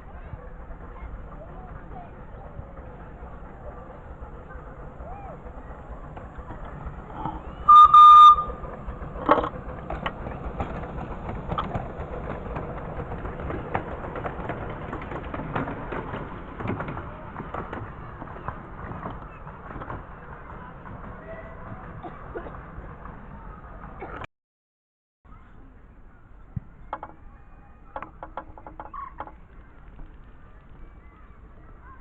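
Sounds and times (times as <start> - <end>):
low running rumble: 0.0 - 24.3
locomotive whistle toot: 7.3 - 8.6
clicks and rattles: 9.0 - 21.2, 26.9 - 27.3, 27.9 - 30.8.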